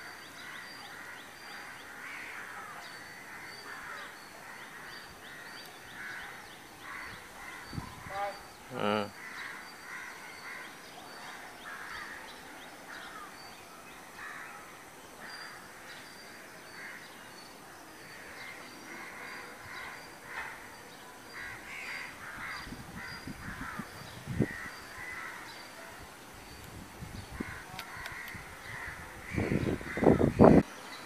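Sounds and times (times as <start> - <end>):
birds calling: 0.0 - 31.0.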